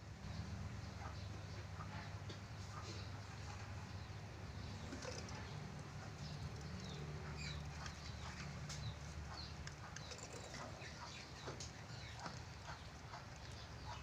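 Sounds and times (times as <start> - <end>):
budgerigars chirping: 5.3 - 14.0.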